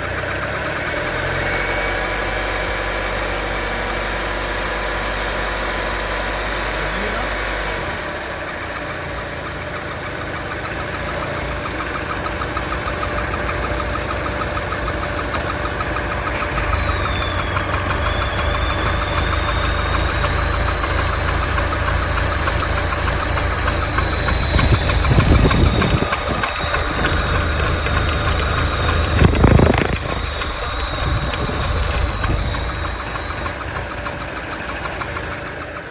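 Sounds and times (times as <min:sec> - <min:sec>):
car engine clacking and rattling: 0:00.0 - 0:35.9
thin high whine: 0:11.1 - 0:35.9.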